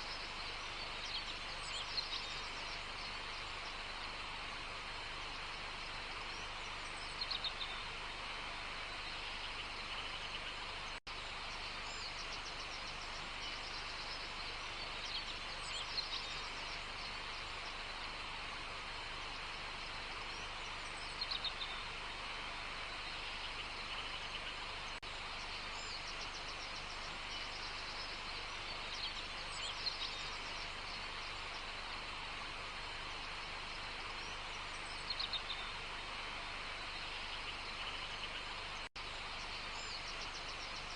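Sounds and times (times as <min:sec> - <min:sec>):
steady background hiss: 0:00.0 - 0:40.9.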